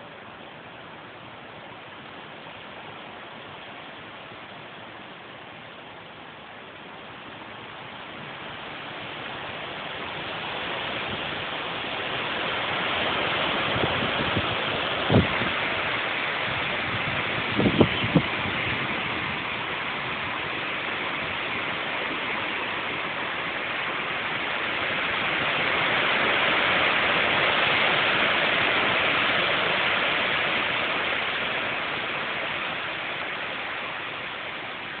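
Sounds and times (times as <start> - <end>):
strong storm wind gusting: 8.3 - 35.0.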